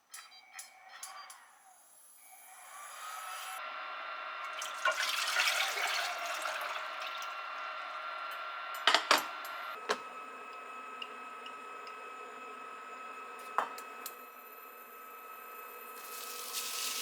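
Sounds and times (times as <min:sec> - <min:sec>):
running water: 0:04.5 - 0:07.4, 0:15.9 - 0:17.0
dishes clinking: 0:08.8 - 0:10.0.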